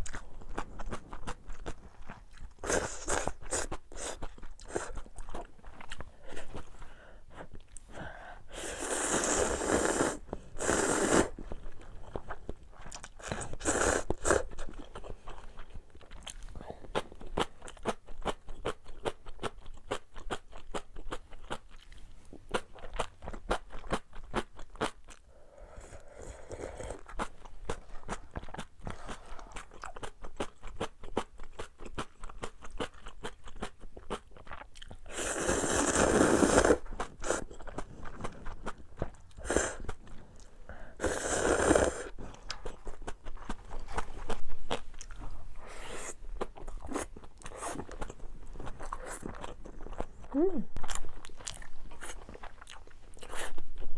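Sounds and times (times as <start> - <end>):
wet chewing and crunching: 0.0 - 8.0, 8.9 - 25.3, 26.3 - 53.9
slurping noodles: 2.6 - 4.9, 8.5 - 11.5, 13.3 - 14.6, 35.1 - 37.6, 39.4 - 40.0, 40.8 - 42.4.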